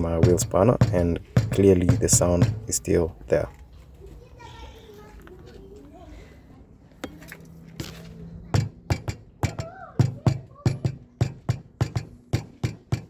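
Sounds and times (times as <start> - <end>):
spanner tapping on wheel: 0.0 - 2.9, 8.6 - 13.0.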